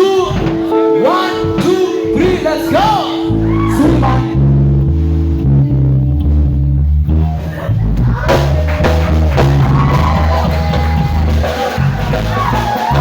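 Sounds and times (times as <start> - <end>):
higher melodic line: 0.0 - 8.2
drum kit: 0.0 - 13.0
electric bass guitar: 0.0 - 13.0.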